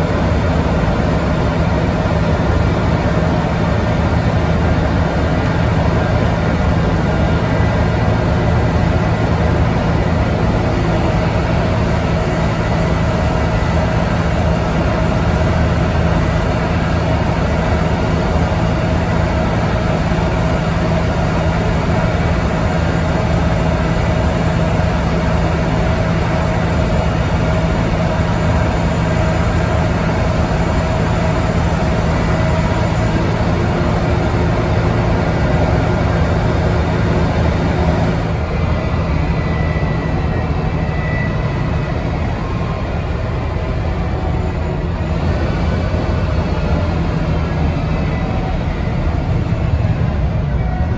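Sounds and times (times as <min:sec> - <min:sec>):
bus engine running: 0:00.0 - 0:50.9.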